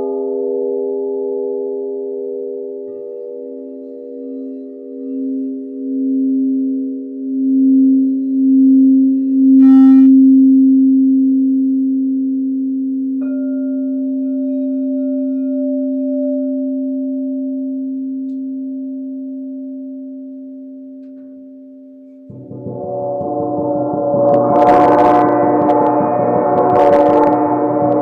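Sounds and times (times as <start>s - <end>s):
crystal singing bowls ringing: 0.0s - 9.6s, 12.4s - 28.0s
shimmering gong: 21.4s - 28.0s.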